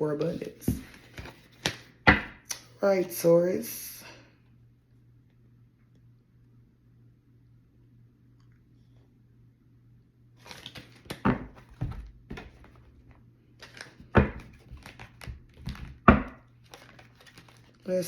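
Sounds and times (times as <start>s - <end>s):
cards rustling and flicking: 0.2s - 2.3s, 10.4s - 13.0s, 13.6s - 17.9s
cards slapping: 10.4s - 12.8s, 13.6s - 17.8s.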